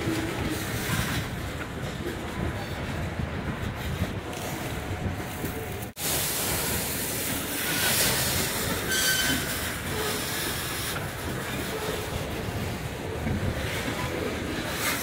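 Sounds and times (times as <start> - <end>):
freight train wheels rumbling: 0.0 - 15.0
faint wheel squeals: 7.6 - 10.4.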